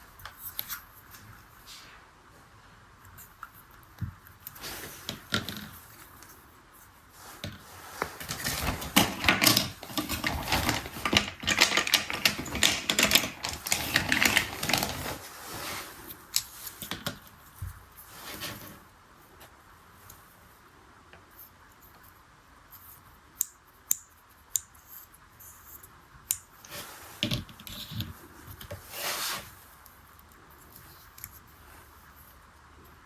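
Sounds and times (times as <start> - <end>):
plastic toy parts clattering: 8.0 - 15.2.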